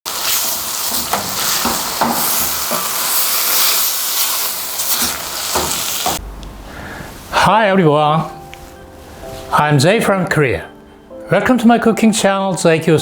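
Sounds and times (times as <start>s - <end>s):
food sizzling in a pan: 0.1s - 6.2s.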